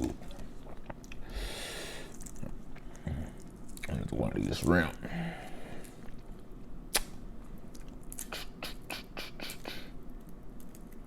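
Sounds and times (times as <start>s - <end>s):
wet clicks and crackles of eating: 0.3s - 1.2s, 2.0s - 5.0s, 5.8s - 8.4s, 10.1s - 11.0s.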